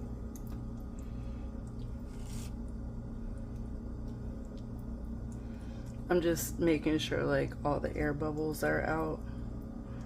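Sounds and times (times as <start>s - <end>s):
steady low hum: 0.0s - 10.0s
utensil scraping pie filling: 1.8s - 2.6s.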